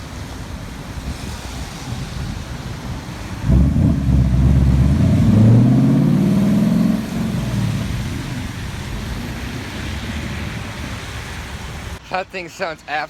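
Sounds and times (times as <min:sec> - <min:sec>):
car engine accelerating hard: 0:03.4 - 0:12.0.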